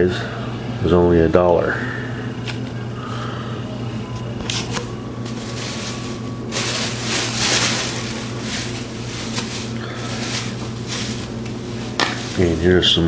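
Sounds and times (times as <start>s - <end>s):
steady low hum: 0.0s - 13.0s
cardboard and wrapping rustling: 4.5s - 13.0s.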